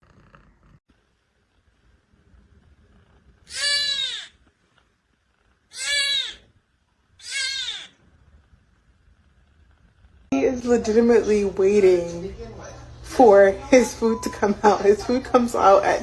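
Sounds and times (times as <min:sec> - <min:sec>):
cat meowing: 0:03.5 - 0:04.4, 0:05.7 - 0:06.5, 0:07.2 - 0:08.0.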